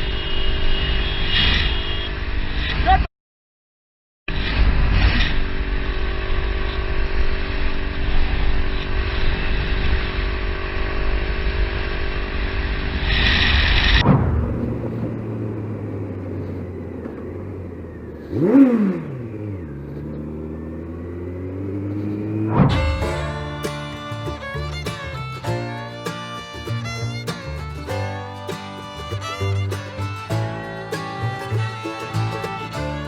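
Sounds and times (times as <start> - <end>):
vehicle passing by: 11.0 - 33.0.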